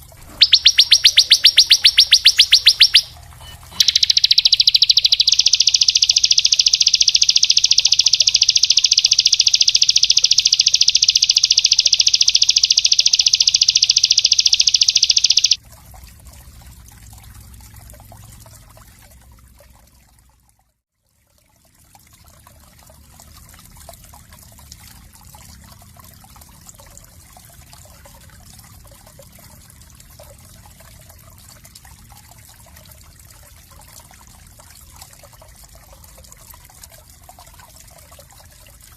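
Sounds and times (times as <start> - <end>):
songbird trilling: 0.0 - 15.6
water trickling: 0.0 - 38.9.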